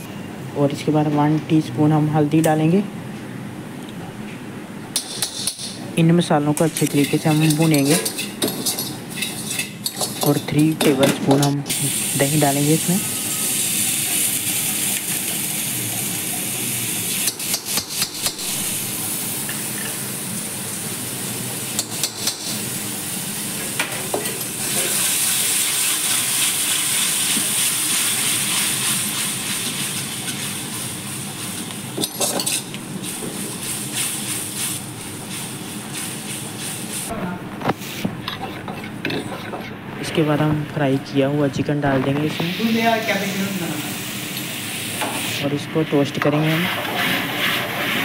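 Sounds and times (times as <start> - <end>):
frying hiss: 4.9 - 39.1, 40.1 - 48.0
metal spatula scraping pan: 38.2 - 39.7, 46.4 - 48.0.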